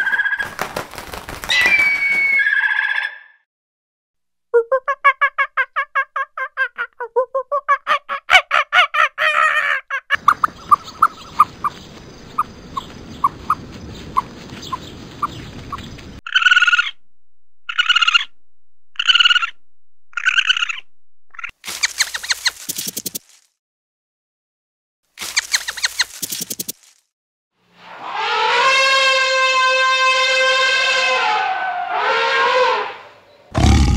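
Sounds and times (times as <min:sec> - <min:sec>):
pitched chattering animal calls: 0:07.8 - 0:17.0, 0:17.7 - 0:18.3, 0:19.0 - 0:23.0
high animal peeps: 0:10.1 - 0:17.0, 0:17.7 - 0:18.3, 0:19.0 - 0:23.4, 0:25.2 - 0:26.9.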